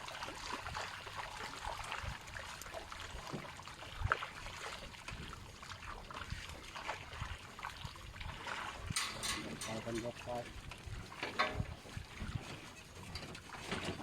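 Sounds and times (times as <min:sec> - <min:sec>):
water sloshing and trickling: 0:00.0 - 0:14.0
light clicks and knocks: 0:09.0 - 0:10.2, 0:11.2 - 0:11.8.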